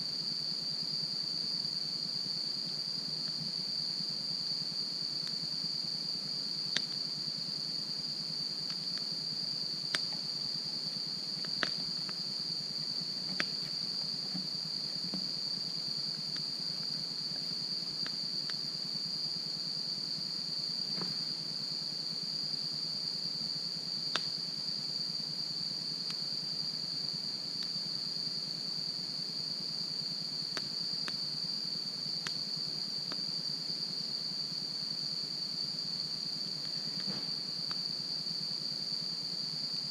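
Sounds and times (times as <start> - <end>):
insect chorus: 0.0 - 39.9
sharp pops of fire: 11.4 - 12.2, 24.1 - 24.4.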